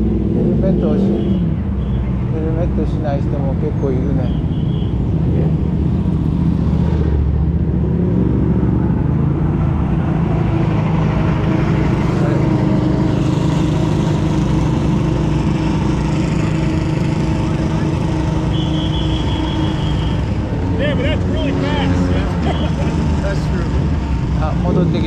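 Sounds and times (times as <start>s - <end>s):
motorcycle engines running: 0.0s - 25.0s
heavy low rumble: 5.0s - 25.0s.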